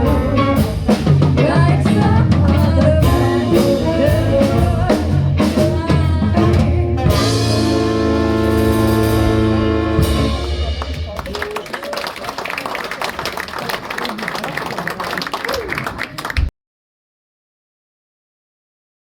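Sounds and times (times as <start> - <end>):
live rock band playing: 0.0 - 11.8.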